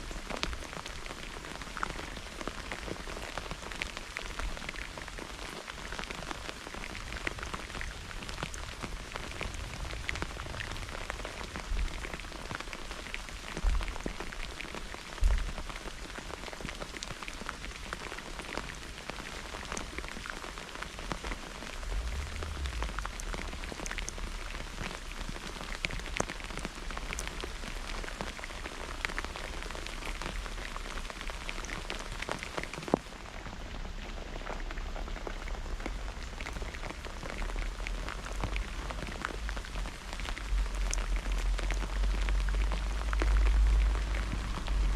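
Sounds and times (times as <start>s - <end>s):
heavy rain: 0.0s - 44.9s
raindrops ticking: 0.0s - 44.9s
low thumps: 21.8s - 24.9s.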